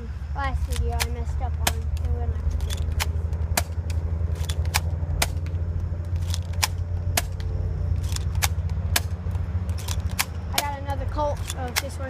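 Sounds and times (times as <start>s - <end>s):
low rumble: 0.0s - 12.0s
airsoft pistol shots: 6.2s - 9.2s.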